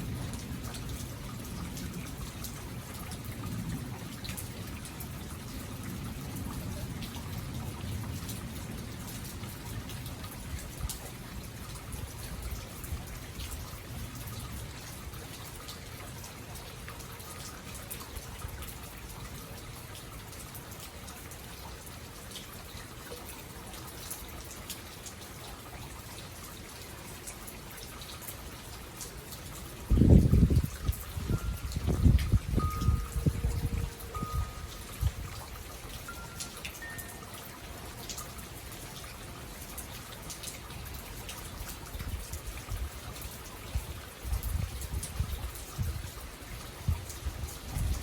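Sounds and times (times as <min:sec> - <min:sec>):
steady rain falling: 0:00.0 - 0:48.0
drips and taps: 0:29.0 - 0:46.2.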